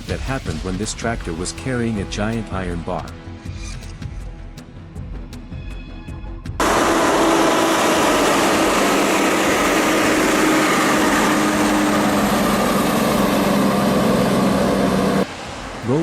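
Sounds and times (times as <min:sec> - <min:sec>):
vehicle engine running: 0:06.6 - 0:15.3.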